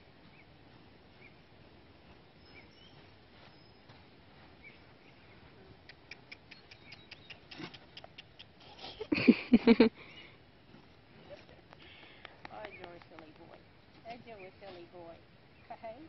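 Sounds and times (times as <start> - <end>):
faint bird chirps: 2.3 - 3.9, 4.6 - 8.4.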